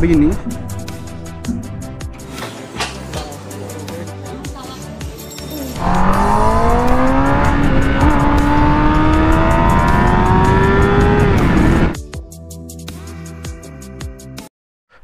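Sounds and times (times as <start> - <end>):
faint music: 1.4 - 5.9
motorcycle engine accelerating: 5.8 - 12.0.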